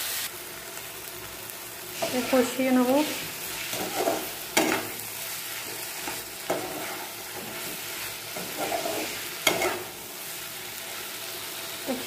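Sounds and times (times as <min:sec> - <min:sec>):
curry sizzling in a pan: 0:00.0 - 0:12.0
spatula clacking on pan: 0:03.7 - 0:05.0, 0:06.0 - 0:07.6, 0:08.4 - 0:09.9.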